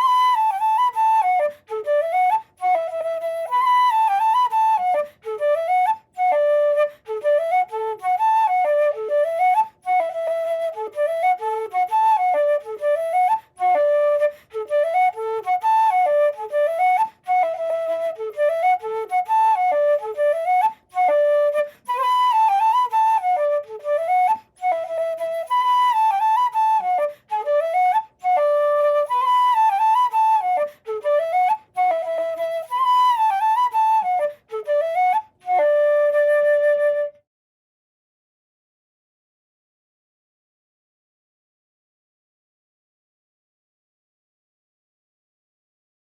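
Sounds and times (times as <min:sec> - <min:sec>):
wooden flute melody: 0:00.0 - 0:37.3.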